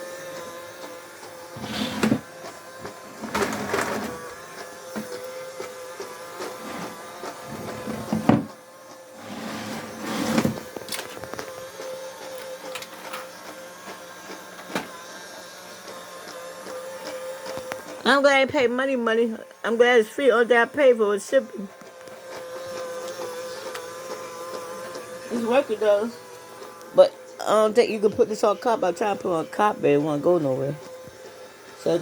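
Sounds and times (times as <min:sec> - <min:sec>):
robot vacuum motor whine: 0:00.0 - 0:32.0
robot vacuum scuffs and knocks: 0:01.5 - 0:04.2, 0:06.5 - 0:08.6, 0:09.2 - 0:11.5.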